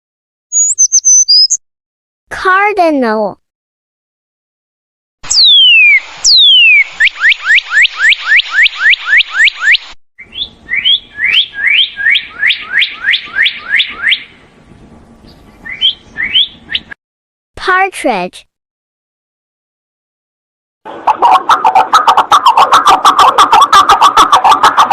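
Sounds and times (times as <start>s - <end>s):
bird singing whistled notes: 0.5s - 1.6s, 5.3s - 14.3s, 15.2s - 17.0s.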